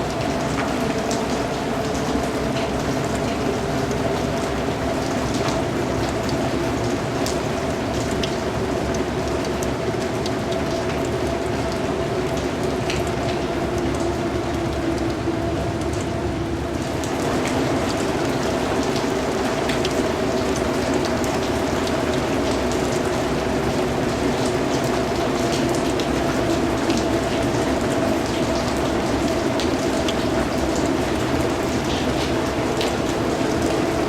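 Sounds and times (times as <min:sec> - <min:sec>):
raindrops ticking: 0:00.0 - 0:34.0
steady rain hiss: 0:00.0 - 0:34.0.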